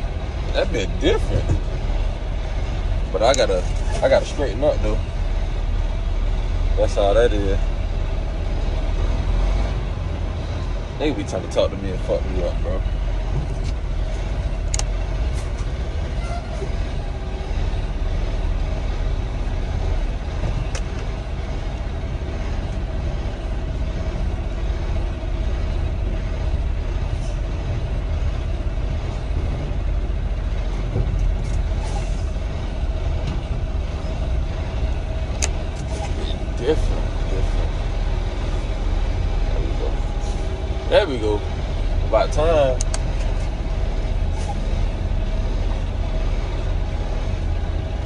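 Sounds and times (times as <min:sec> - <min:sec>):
diesel truck engine rumbling: 0:00.0 - 0:48.0
faint sharp clicks: 0:42.8 - 0:43.0.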